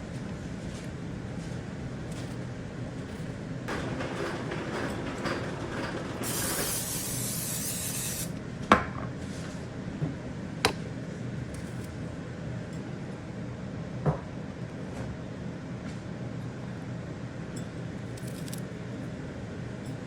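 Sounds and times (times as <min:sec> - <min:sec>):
kitchen exhaust fan hum: 0:00.0 - 0:20.0
spray hiss: 0:06.6 - 0:08.3.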